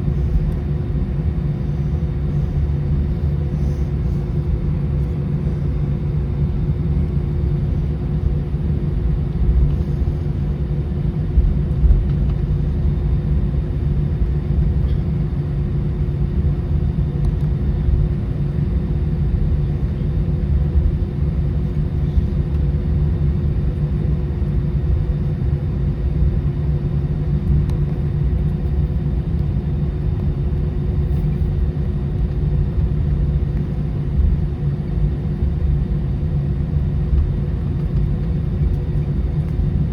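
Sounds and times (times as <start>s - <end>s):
airplane cabin engine rumble: 0.0s - 39.9s
faint steady hum: 0.0s - 39.9s.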